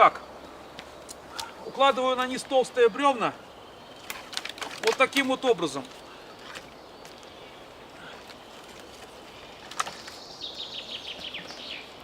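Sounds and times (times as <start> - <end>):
forest background: 0.0 - 12.0
wooden knocks of logs: 4.0 - 7.2, 8.2 - 10.2
songbird trilling: 9.3 - 12.0.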